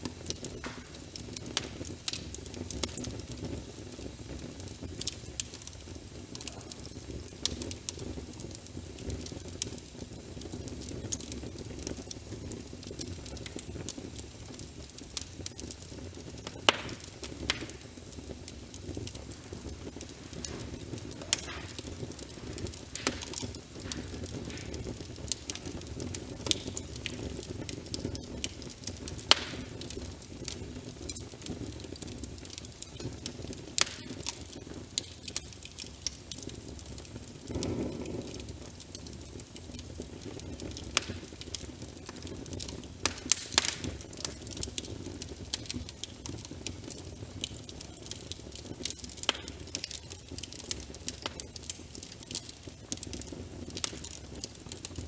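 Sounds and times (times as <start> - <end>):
wood fire crackling: 0.0 - 55.0
rain hissing: 15.7 - 44.4.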